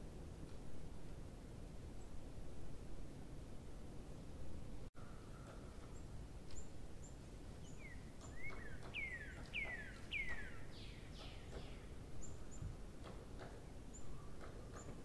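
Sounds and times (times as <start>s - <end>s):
steady low hiss: 0.0s - 15.0s
bird chirping: 5.0s - 12.8s, 13.8s - 15.0s.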